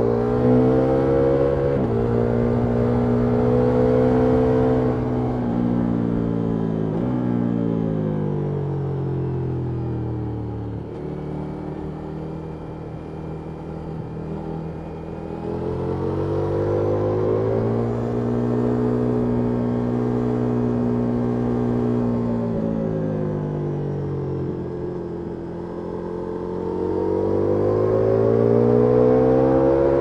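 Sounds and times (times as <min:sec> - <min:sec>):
motorcycle engine revving: 0:00.0 - 0:07.8, 0:24.4 - 0:30.0.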